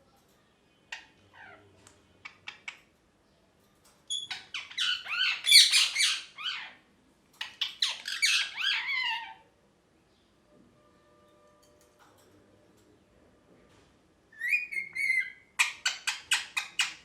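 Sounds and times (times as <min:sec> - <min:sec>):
parrot squawking and chattering: 0:00.9 - 0:02.9, 0:04.1 - 0:06.8, 0:07.4 - 0:09.5, 0:14.4 - 0:17.0.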